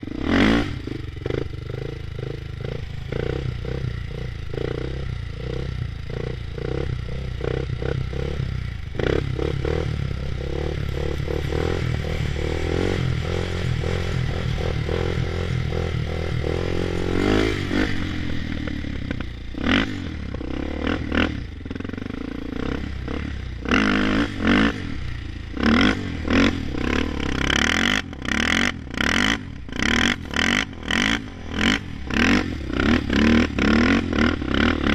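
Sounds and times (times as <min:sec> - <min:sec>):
short loud engine revs: 0:08.2 - 0:21.5.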